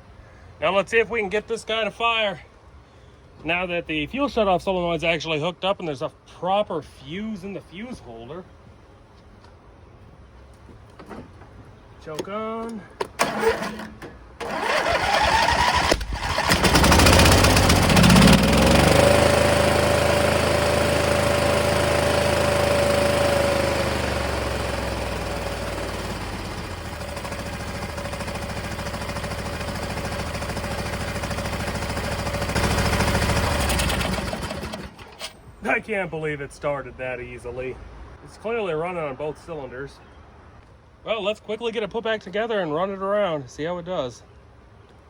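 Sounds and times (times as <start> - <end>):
garden tractor engine running: 11.0 - 35.8
engine cranking and starting: 13.0 - 35.6.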